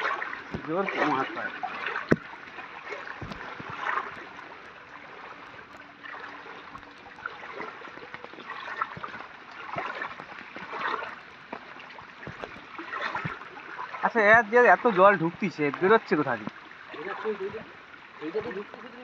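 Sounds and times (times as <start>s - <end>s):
floodwater trickling: 0.0s - 19.0s
small knocks and splashes: 0.0s - 19.0s.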